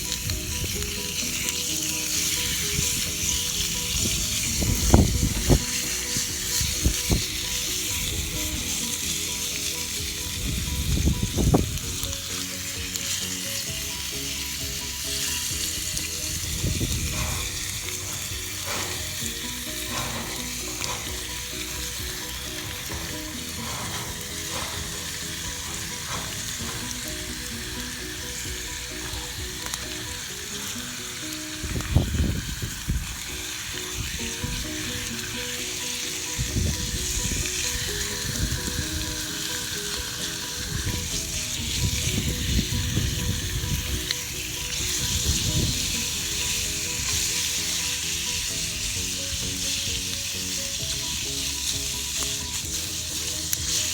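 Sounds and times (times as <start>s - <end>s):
steak sizzling: 0.0s - 53.9s.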